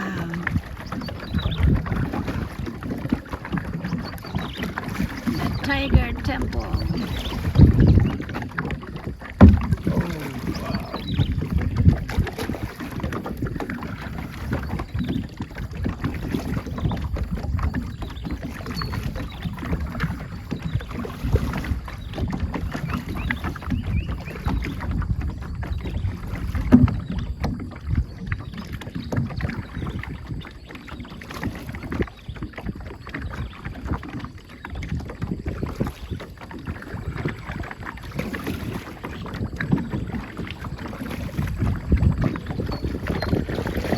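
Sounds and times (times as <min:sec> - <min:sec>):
river water rushing past hull: 0:00.0 - 0:15.0
wind buffeting microphone: 0:00.0 - 0:43.9.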